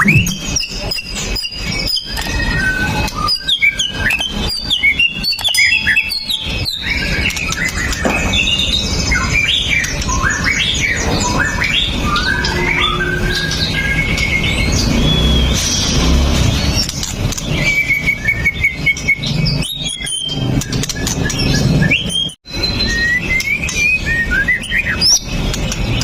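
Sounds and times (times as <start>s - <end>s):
songbird singing: 0.0s - 16.2s.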